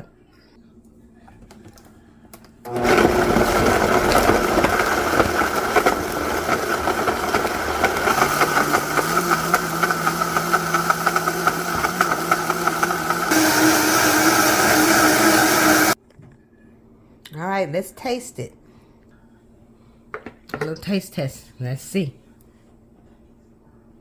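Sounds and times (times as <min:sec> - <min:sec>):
electric blender running: 0:02.7 - 0:16.0.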